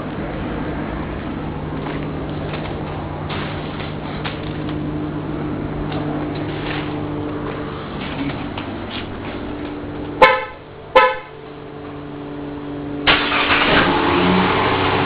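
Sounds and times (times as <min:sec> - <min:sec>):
steady low hum: 0:00.0 - 0:13.1
car horn beeping: 0:10.2 - 0:11.4.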